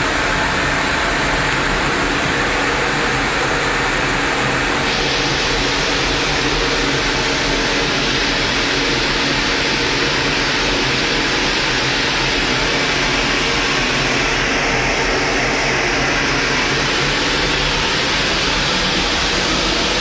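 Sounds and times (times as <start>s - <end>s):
machinery rushing noise: 4.8s - 20.0s.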